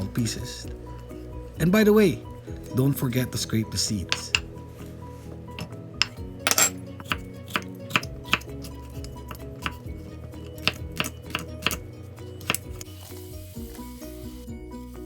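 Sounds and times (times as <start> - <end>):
background music: 0.0 - 15.0
knife chopping on cutting board: 4.1 - 4.5, 6.0 - 9.9, 10.6 - 11.8, 12.4 - 12.8.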